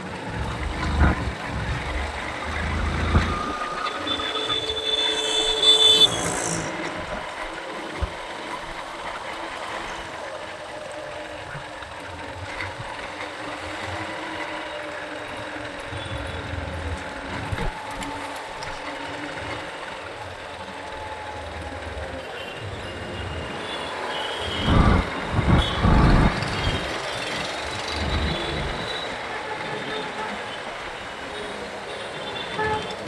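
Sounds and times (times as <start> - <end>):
motorcycle engine and road noise: 0.0 - 5.0, 21.7 - 30.0
vehicle horn: 0.3 - 7.1, 23.2 - 29.1, 32.0 - 33.0.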